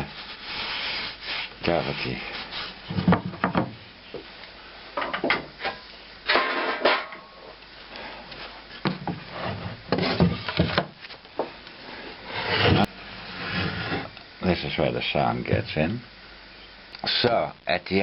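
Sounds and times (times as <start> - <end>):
wooden knocks: 3.0 - 3.8.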